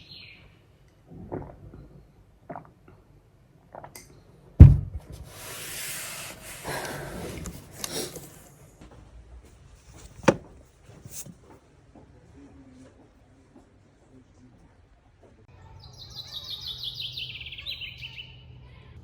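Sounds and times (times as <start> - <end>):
sharp knock: 4.6 - 5.0
heavy thump: 4.6 - 5.3, 10.0 - 11.2.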